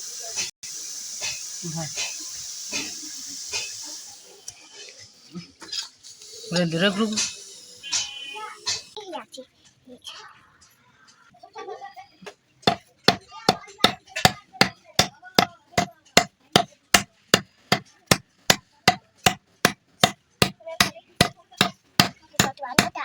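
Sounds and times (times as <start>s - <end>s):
hammer blows on iron: 12.7s - 23.0s.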